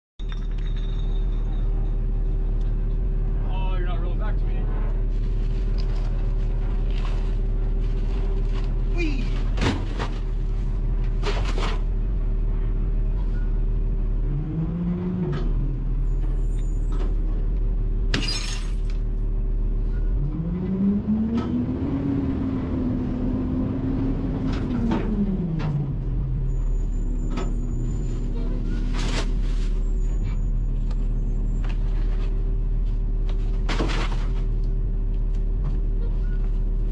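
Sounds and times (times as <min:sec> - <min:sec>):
garbage truck running: 0:00.2 - 0:36.9
hydraulics whining: 0:00.2 - 0:36.9.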